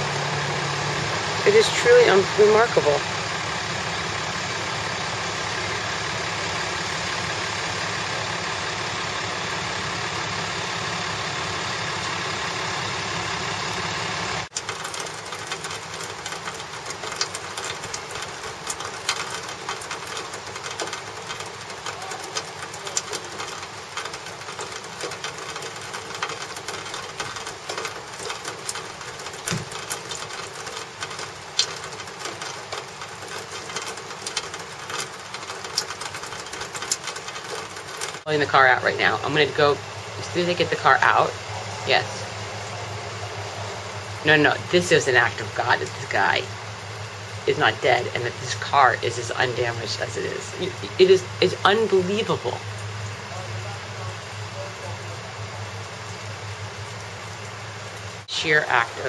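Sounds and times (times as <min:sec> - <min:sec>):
rattling mechanical clatter: 0:00.0 - 0:41.5
tow truck engine running: 0:00.0 - 0:59.0.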